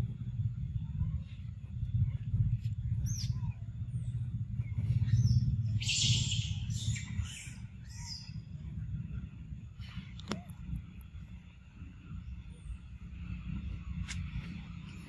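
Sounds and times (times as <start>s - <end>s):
steady low rumble: 0.0s - 15.0s
birds chirping: 2.8s - 10.6s.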